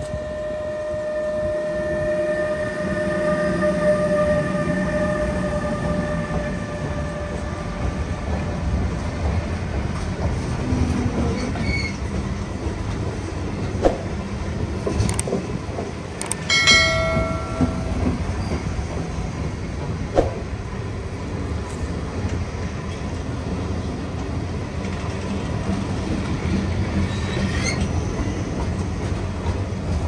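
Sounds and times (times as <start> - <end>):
freight train wheels clattering: 5.9 - 21.6
sharp clicks: 15.0 - 15.4, 16.2 - 16.5
brief ringing tone: 16.2 - 18.6.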